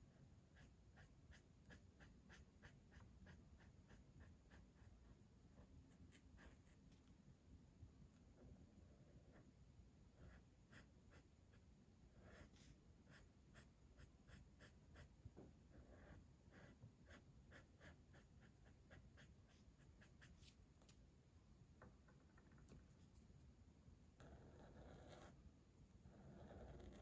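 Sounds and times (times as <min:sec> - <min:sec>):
colouring tool scratching on paper: 0:00.5 - 0:05.0, 0:10.2 - 0:11.6, 0:12.2 - 0:15.1, 0:15.8 - 0:20.5.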